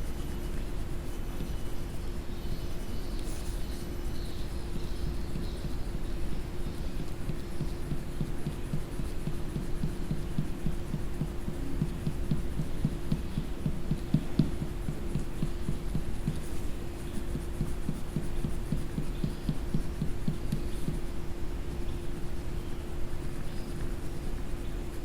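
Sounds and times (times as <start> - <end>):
coloring strokes on paper: 0.0 - 25.0
steady low hum: 0.0 - 25.0.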